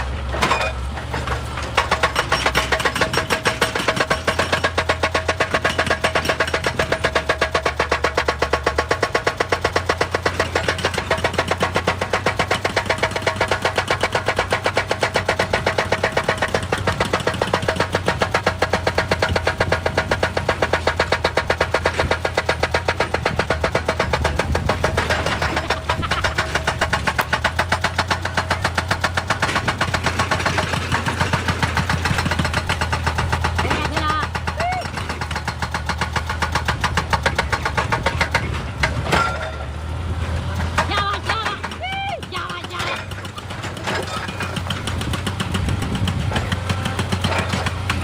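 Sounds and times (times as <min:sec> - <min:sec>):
excavator engine hum: 0:00.0 - 0:48.0.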